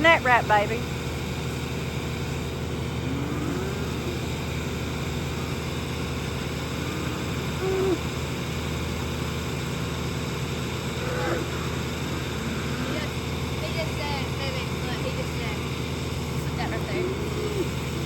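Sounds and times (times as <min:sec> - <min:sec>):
tractor engine idling: 0:00.0 - 0:18.0
faint short pitched calls: 0:05.4 - 0:08.5.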